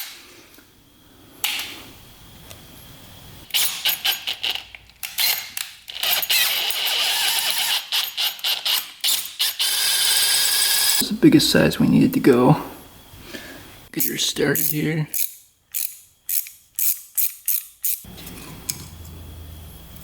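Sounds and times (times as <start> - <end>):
power drill running in bursts: 6.0 - 11.0.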